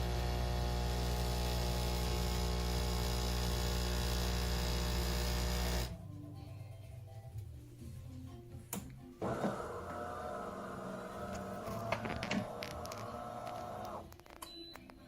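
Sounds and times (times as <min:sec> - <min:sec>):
espresso machine pump humming: 0:00.0 - 0:06.0, 0:09.2 - 0:14.0.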